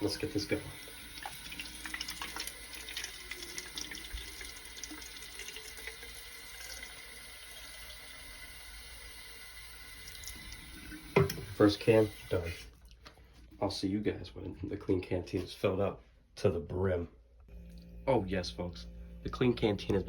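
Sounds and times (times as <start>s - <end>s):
tap water filling a can: 0.0s - 12.7s.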